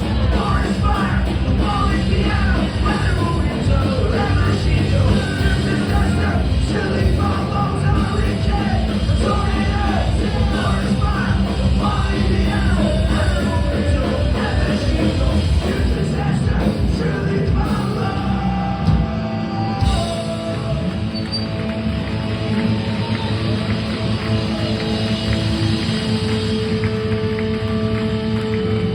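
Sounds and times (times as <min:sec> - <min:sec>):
sung and yelled vocals: 0:00.0 - 0:21.6
punk rock band playing: 0:00.0 - 0:28.9.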